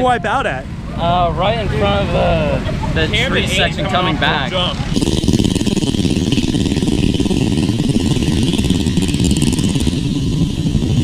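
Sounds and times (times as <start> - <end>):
mini bike engines running: 1.0 - 11.0.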